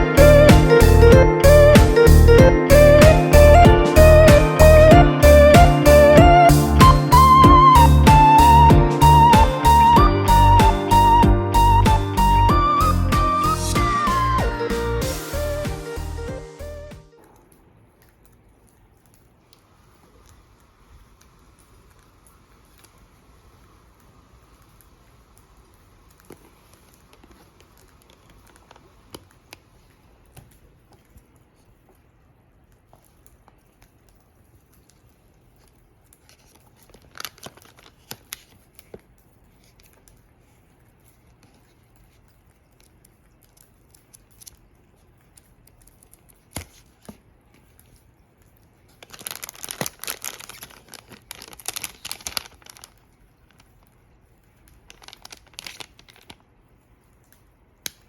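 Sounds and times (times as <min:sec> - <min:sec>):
wood fire crackling: 0:17.2 - 0:40.0.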